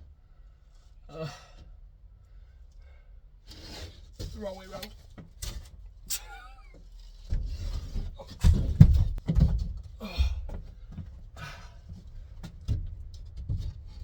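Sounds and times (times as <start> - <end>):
grunts of effort: 1.1 - 1.6, 10.0 - 10.5
wooden board bumps and knocks: 7.3 - 10.6.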